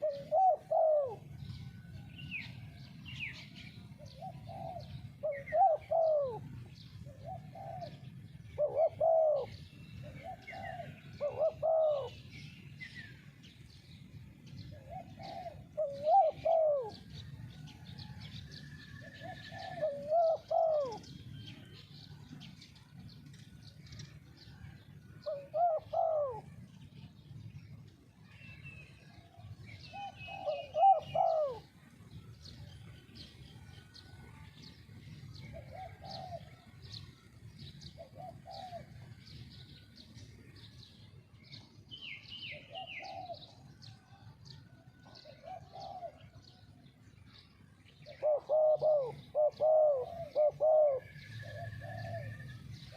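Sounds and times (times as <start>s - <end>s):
dove cooing: 0.0s - 26.8s, 29.2s - 40.0s, 42.5s - 46.6s, 47.9s - 52.9s.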